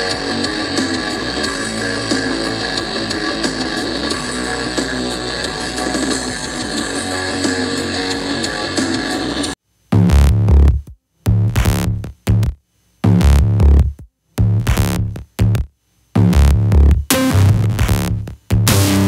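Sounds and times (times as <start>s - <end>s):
electronic dance music: 0.0s - 9.6s, 16.5s - 19.0s.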